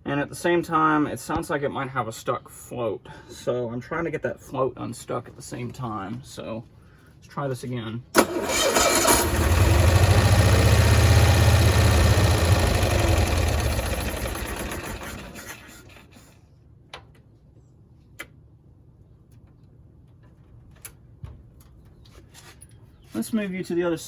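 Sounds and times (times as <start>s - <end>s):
small engine starting and running: 8.2s - 16.4s.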